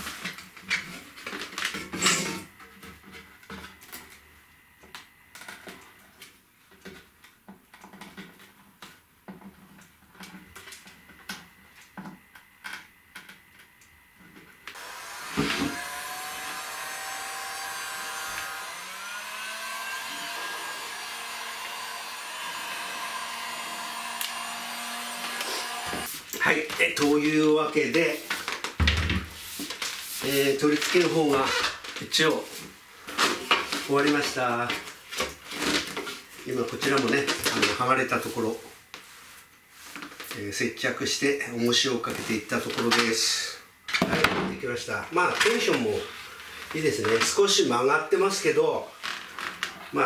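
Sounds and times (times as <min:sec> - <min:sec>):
electric blower motor whining: 0:14.8 - 0:26.1.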